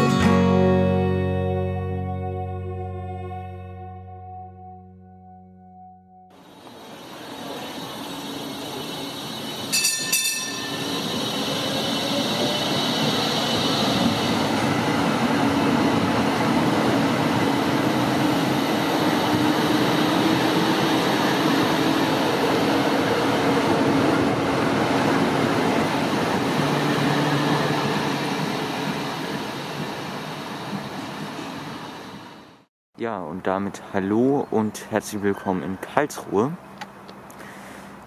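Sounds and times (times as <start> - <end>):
train rumbling past: 6.3 - 32.7
short bright dings: 9.7 - 10.8.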